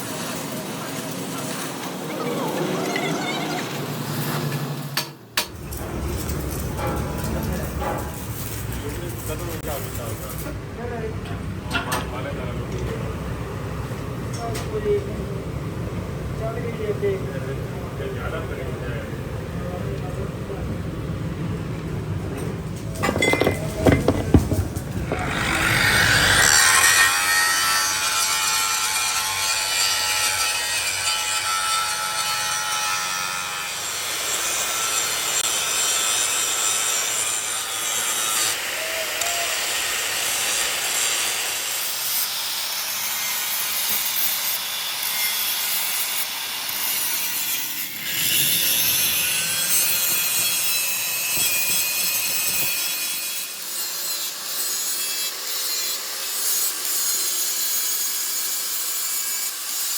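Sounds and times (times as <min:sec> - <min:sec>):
tool scraping and cutting metal: 0:02.8 - 0:10.6, 0:22.4 - 0:39.3, 0:40.1 - 0:59.9.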